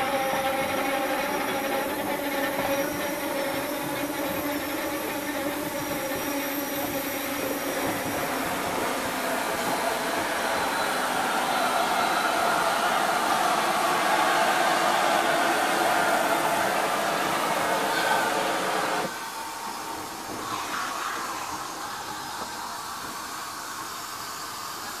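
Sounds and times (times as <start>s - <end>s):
slow train hissing and rumbling: 0.0s - 25.0s.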